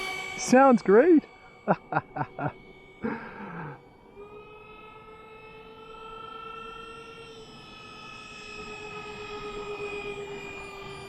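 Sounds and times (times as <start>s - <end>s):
electric ducted fans whining: 0.0s - 11.0s.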